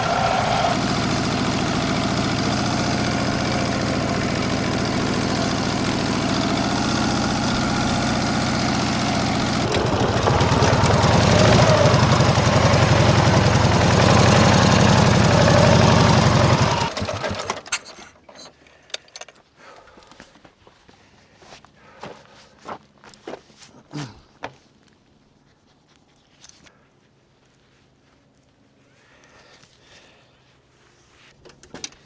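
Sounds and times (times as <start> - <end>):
motorcycle engine idling: 0.0 - 17.4.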